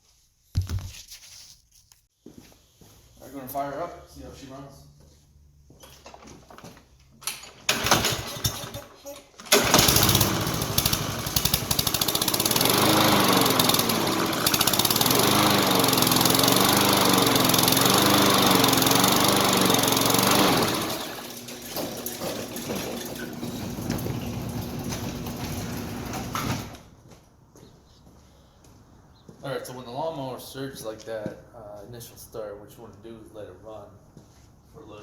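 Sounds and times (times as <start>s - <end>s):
lawn mower engine surging: 7.7s - 26.8s.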